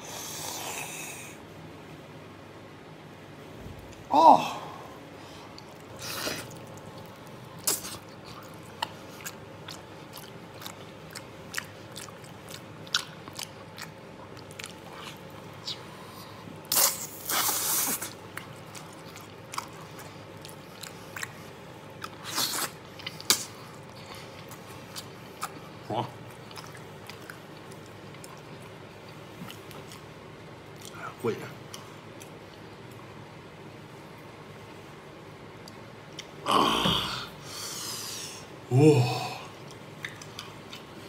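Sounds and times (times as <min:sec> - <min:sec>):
person chewing wetly: 0:05.5 - 0:31.0, 0:39.6 - 0:41.0.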